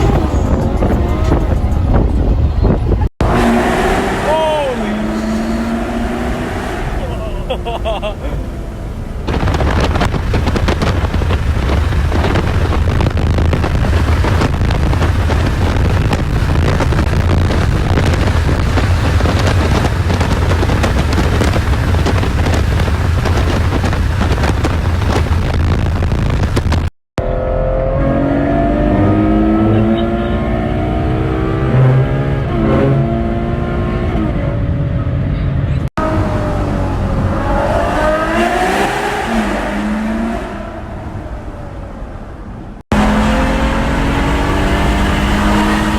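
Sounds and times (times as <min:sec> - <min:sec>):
wind buffeting: 0:00.0 - 0:26.9, 0:33.0 - 0:45.9
car engine revving: 0:00.0 - 0:45.9
low rumble: 0:04.9 - 0:27.4.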